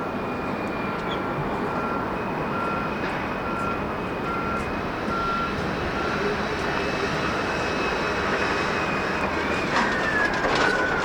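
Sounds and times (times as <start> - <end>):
jet engines rumbling: 0.0 - 11.0
reversing alarm beeping: 1.7 - 11.0.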